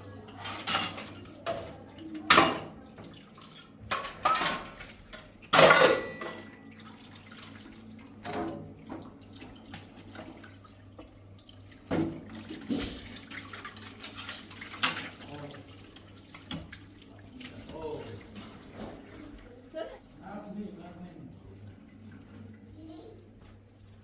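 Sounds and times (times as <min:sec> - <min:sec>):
water running: 0:00.0 - 0:24.0
dishes and pots knocking together: 0:05.5 - 0:06.5.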